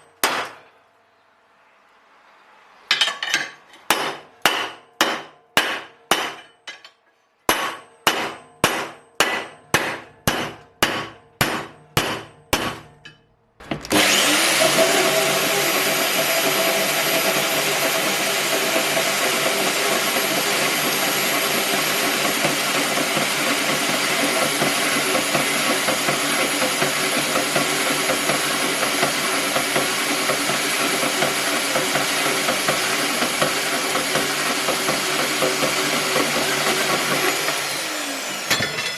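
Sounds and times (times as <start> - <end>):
hammer blows ringing: 0.0 - 0.8, 3.9 - 6.6, 7.5 - 13.3
power tool motor whining: 13.7 - 38.6.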